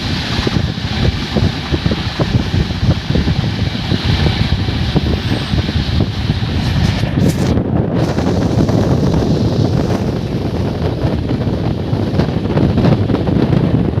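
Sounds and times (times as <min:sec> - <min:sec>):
moving train rumble: 0:00.0 - 0:14.0
wind buffeting microphone: 0:00.0 - 0:14.0.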